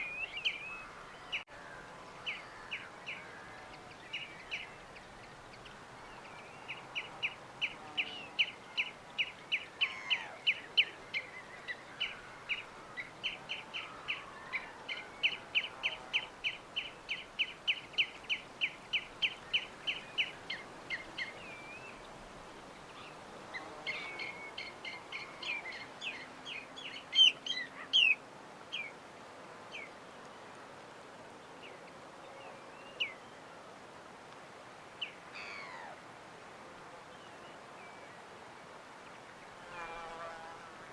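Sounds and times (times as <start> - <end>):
background hiss: 0.0 - 40.9.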